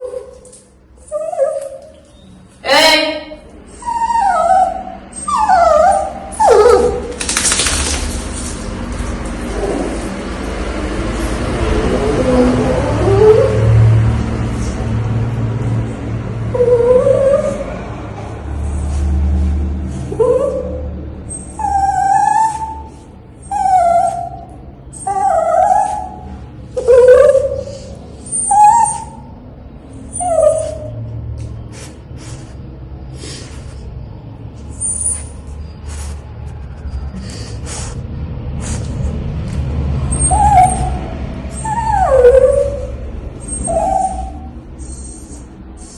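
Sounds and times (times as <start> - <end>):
dog whining and howling: 0.0 - 2.1, 3.6 - 7.2, 11.8 - 14.0, 16.5 - 17.8, 20.0 - 31.1, 39.9 - 45.9.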